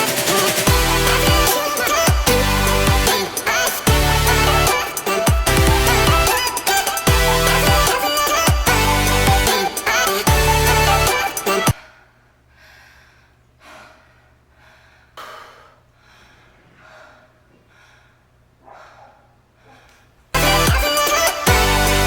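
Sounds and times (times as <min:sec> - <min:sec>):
person breathing: 0:11.8 - 0:20.1.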